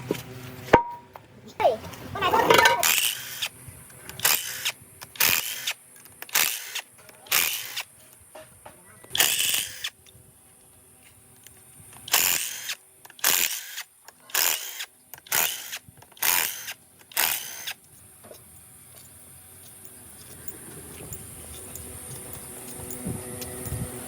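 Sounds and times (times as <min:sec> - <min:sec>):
power tool bursts: 0:02.5 - 0:03.5, 0:04.1 - 0:07.9, 0:09.1 - 0:10.0, 0:12.0 - 0:17.8.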